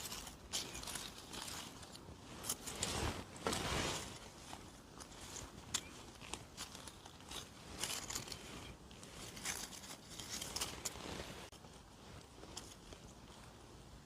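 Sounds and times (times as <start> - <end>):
forest floor litter rustling: 0.0 - 14.0.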